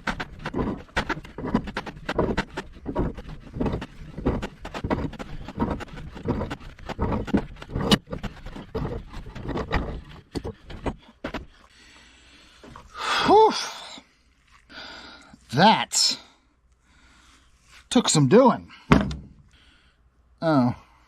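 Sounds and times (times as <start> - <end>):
person grunting: 13.0 - 13.9.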